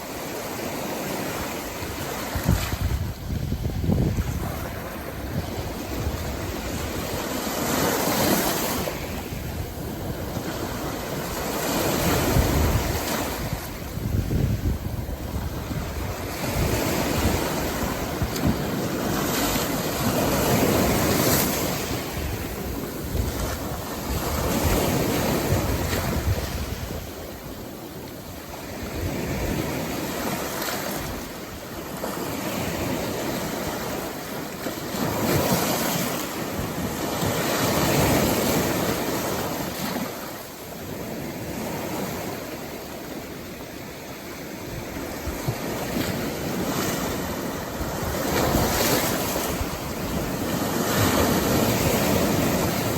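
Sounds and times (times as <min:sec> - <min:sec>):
heavy surf breaking: 0:00.0 - 0:52.9
wind buffeting microphone: 0:01.0 - 0:34.1, 0:44.2 - 0:52.9.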